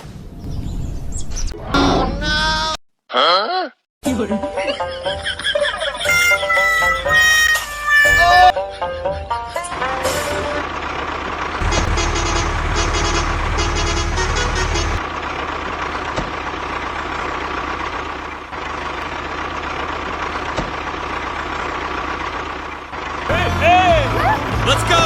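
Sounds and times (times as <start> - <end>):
truck engine running: 9.5 - 25.0.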